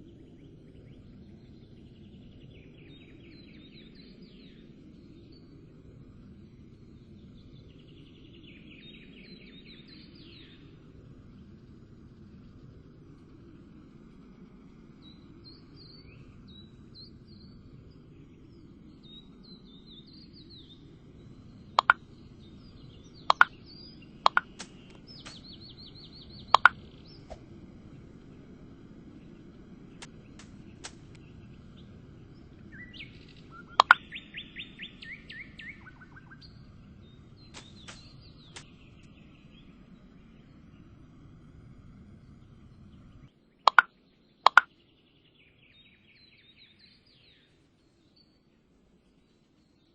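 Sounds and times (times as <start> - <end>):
low background rumble: 0.0 - 43.6
birds chirping: 18.0 - 41.0, 42.5 - 43.9
rapid trilled bird calls: 21.8 - 22.1, 22.8 - 27.4, 32.7 - 36.6, 37.4 - 38.7, 43.7 - 43.9.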